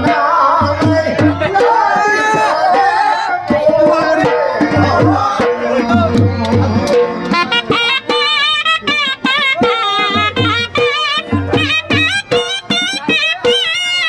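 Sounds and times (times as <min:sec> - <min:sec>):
dhol drum rhythm: 0:00.0 - 0:14.0
double-reed pipe melody: 0:04.2 - 0:14.0.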